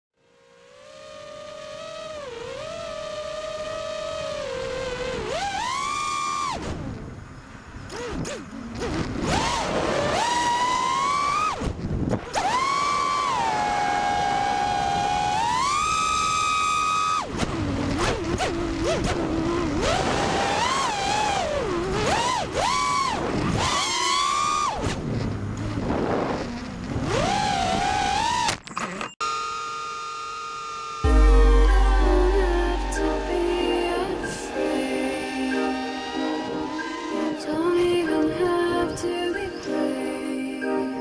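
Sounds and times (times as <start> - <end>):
quadcopter motors whining: 0.2 - 7.3, 7.9 - 25.2, 25.9 - 31.7, 32.6 - 40.0.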